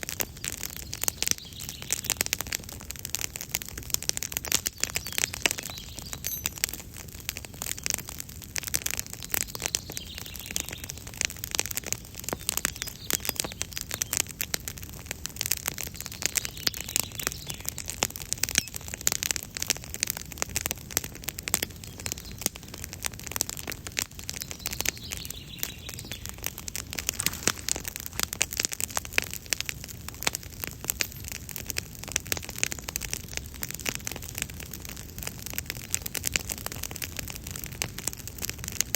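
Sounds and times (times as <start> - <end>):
campfire crackling: 0.0 - 38.9
faint birds calling: 4.3 - 8.0, 9.2 - 14.4, 15.8 - 19.7, 24.1 - 28.5.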